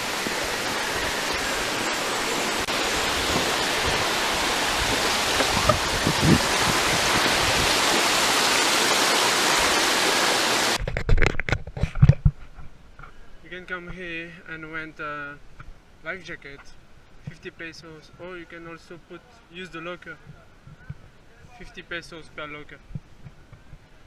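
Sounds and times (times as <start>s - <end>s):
waterfall roaring: 0.0s - 10.8s.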